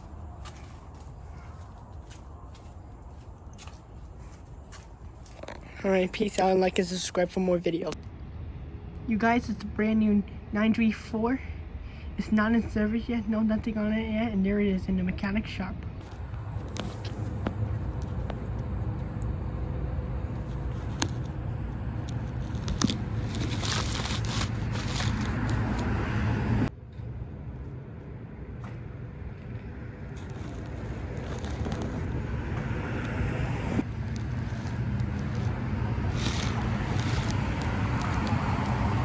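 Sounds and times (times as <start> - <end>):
fire truck engine rumbling: 16.2 - 26.7, 29.2 - 39.0.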